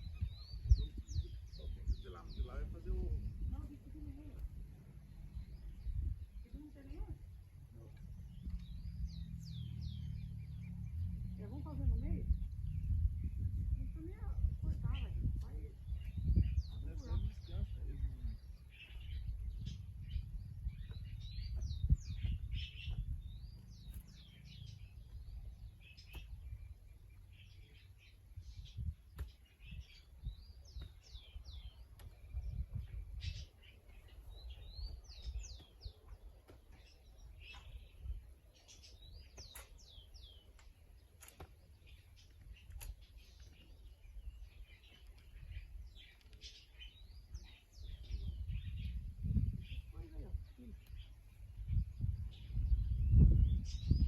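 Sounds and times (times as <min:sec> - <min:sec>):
low rumble: 0:00.0 - 0:35.6
small birds chirping: 0:00.0 - 0:54.0.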